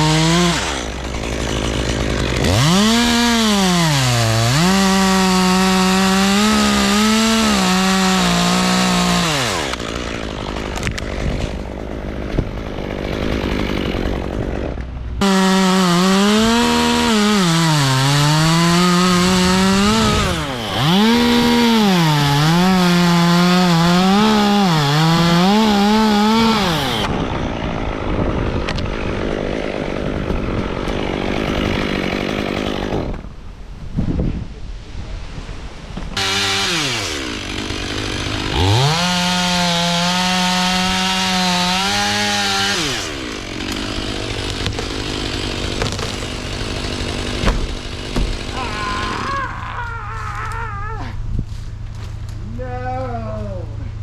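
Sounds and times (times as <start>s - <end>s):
chainsaw cutting wood: 0.0s - 33.4s, 36.2s - 49.6s.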